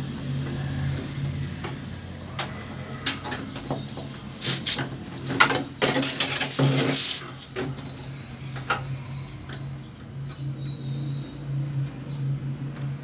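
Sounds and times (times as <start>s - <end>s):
rustling scrape: 4.4s - 7.8s.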